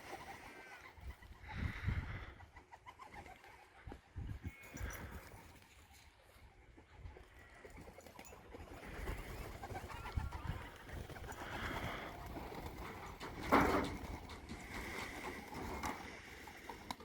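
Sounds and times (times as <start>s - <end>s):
pigeons cooing: 8.7s - 17.0s.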